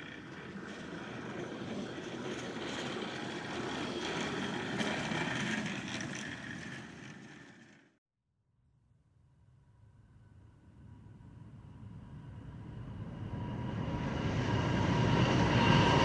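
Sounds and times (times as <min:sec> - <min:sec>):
moving train rumble: 0:00.0 - 0:08.0.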